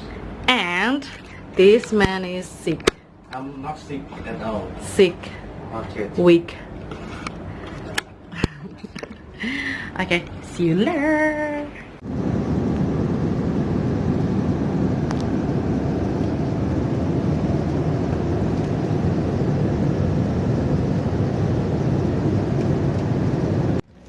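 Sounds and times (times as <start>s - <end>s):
airliner engines humming: 0.0s - 24.0s
rush of air in cabin: 11.4s - 23.8s.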